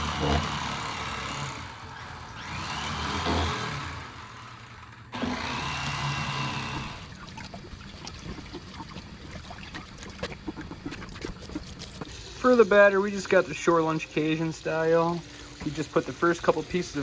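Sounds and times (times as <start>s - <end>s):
electric knife motor hum: 0.0s - 7.2s.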